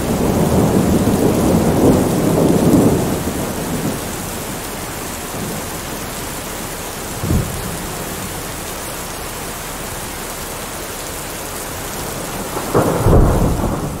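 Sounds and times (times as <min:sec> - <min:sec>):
thunder crack: 0:00.0 - 0:04.2, 0:12.1 - 0:14.0
thunder clap rumbling: 0:00.0 - 0:08.6, 0:11.9 - 0:14.0
steady rain: 0:00.0 - 0:14.0.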